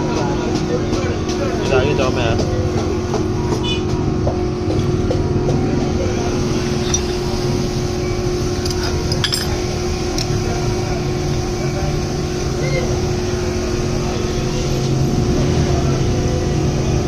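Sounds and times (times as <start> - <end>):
steady mechanical hum: 0.0 - 17.0
metallic clinks of hand tools: 8.6 - 9.6.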